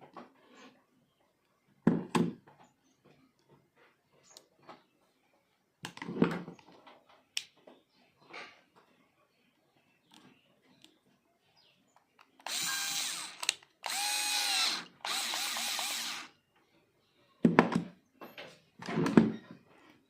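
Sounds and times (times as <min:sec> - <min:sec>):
electric drill motor whine: 0:12.4 - 0:16.3.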